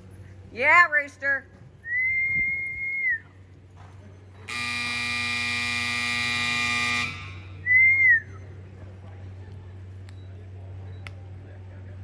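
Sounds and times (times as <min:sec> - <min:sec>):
arena time buzzer: 0:04.5 - 0:07.6
loud whistle: 0:04.5 - 0:08.4.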